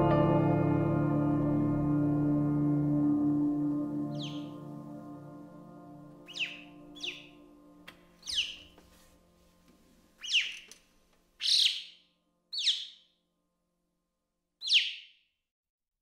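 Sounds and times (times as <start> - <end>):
bird chirping: 4.1 - 4.7, 6.2 - 7.5, 8.2 - 8.8, 10.2 - 13.1, 14.6 - 15.2.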